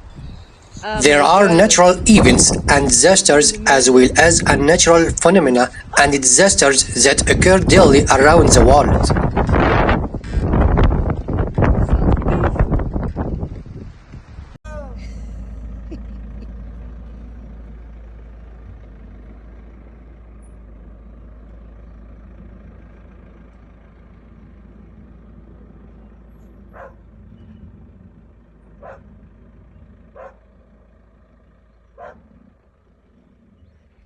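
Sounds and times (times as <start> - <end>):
low rumbling noise: 0.0 - 34.0
dog barking: 26.7 - 27.0, 28.8 - 29.1, 30.2 - 30.4, 32.0 - 32.2.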